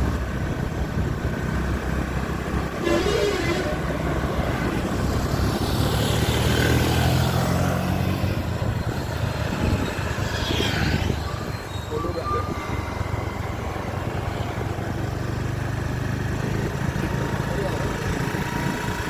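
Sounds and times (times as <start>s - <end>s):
road noise: 0.0s - 19.0s
vehicle engine running: 12.3s - 19.0s.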